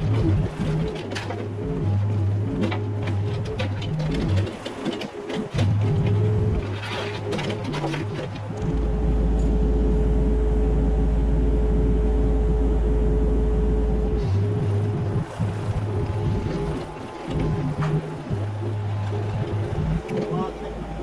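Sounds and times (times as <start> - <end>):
hydraulic whine: 0.0 - 21.0
excavator diesel engine rumble: 5.4 - 21.0.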